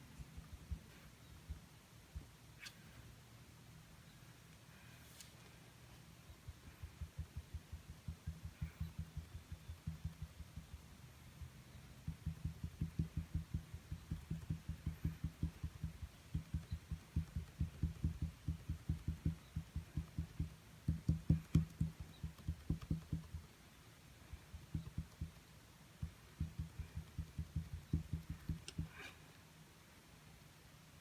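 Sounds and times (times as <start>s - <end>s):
paint dabbing on canvas taps: 6.5s - 10.8s, 11.4s - 23.4s, 24.6s - 29.0s.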